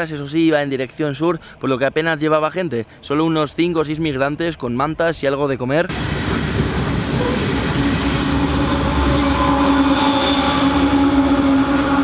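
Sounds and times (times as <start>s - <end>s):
diesel locomotive hum: 5.9s - 12.0s
freight wagons rumbling: 5.9s - 12.0s.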